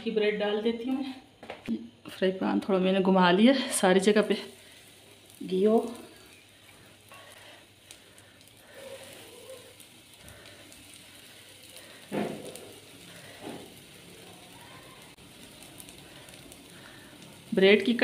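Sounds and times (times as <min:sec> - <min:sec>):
bread sizzling in a frying pan: 0:02.4 - 0:18.0.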